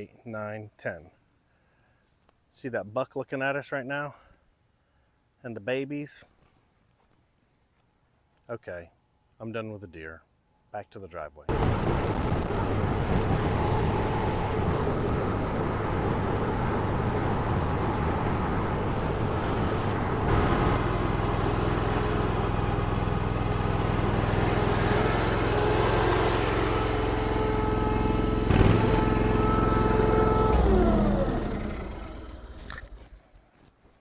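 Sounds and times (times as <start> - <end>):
gasoline engine running: 11.5 - 33.0.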